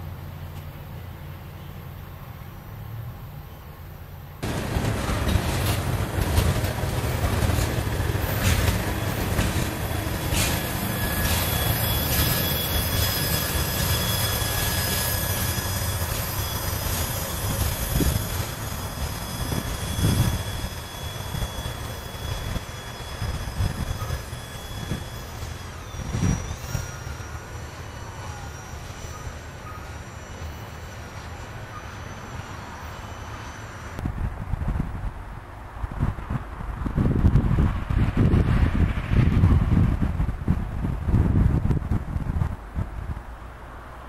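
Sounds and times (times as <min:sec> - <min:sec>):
freight train rumble: 0:00.0 - 0:44.0
high wheel squeal: 0:04.4 - 0:34.0.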